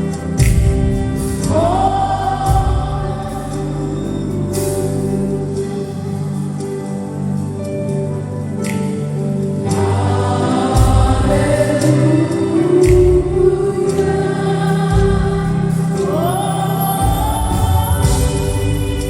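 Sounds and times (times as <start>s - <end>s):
choir singing: 0.0s - 19.0s
keyboard chords: 0.0s - 19.0s
bass notes: 17.0s - 19.0s.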